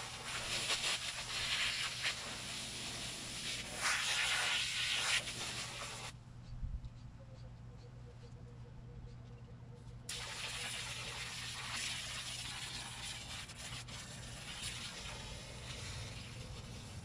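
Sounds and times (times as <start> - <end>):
hose nozzle spraying water: 0.0 - 6.1, 10.1 - 17.0.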